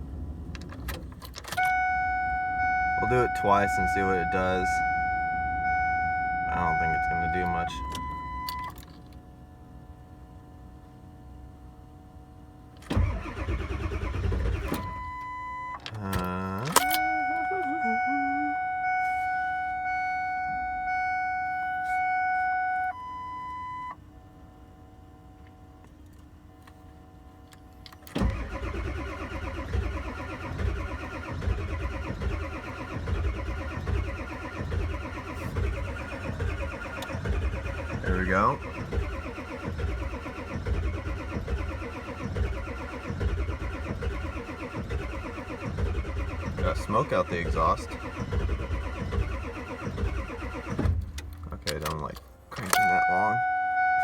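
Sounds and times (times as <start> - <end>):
diesel engine cranking on starter: 0.0 - 9.2, 12.6 - 18.2, 27.5 - 54.0
dashboard warning chime: 1.5 - 8.8, 14.8 - 24.0, 52.6 - 54.0.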